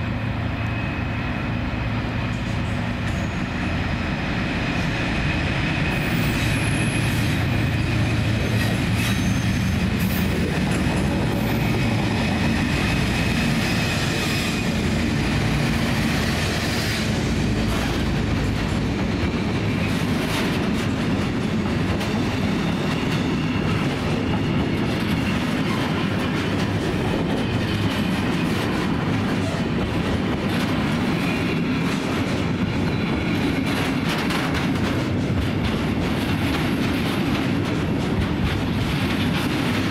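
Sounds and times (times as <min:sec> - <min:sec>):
freight train rumbling past: 0:00.0 - 0:39.9
thin wheel squeal: 0:09.0 - 0:09.7.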